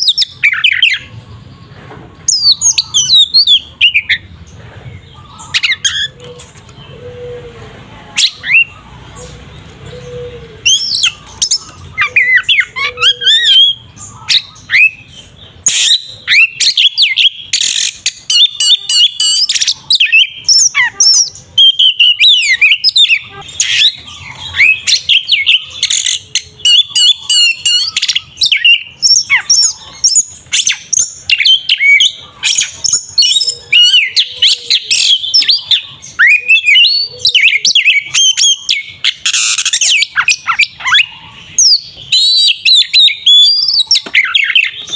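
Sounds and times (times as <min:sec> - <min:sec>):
bird singing whistles and chirps: 0:08.2 - 0:44.9.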